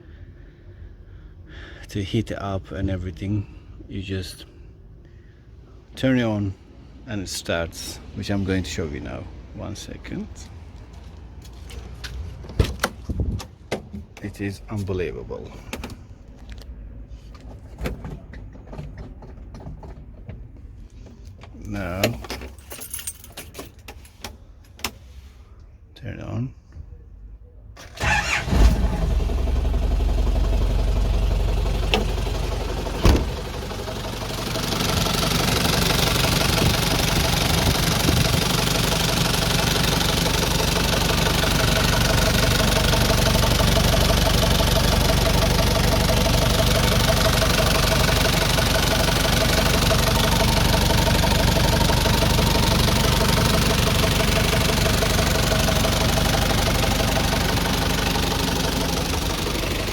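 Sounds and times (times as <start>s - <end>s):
diesel engine starting and idling: 27.7s - 59.9s.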